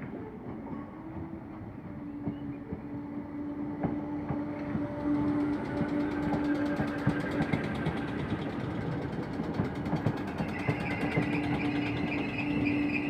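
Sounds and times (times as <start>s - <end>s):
electric train passing: 0.0s - 13.0s
wheels clicking over rail joints: 0.0s - 13.0s.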